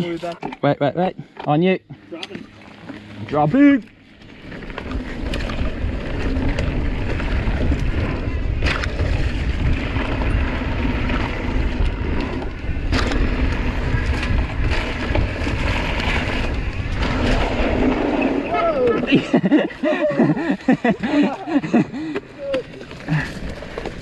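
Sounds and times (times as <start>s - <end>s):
tyres rushing on dirt: 3.0s - 24.0s
bike clacking over bumps: 4.2s - 18.5s, 19.4s - 24.0s
wind over microphone: 4.4s - 24.0s.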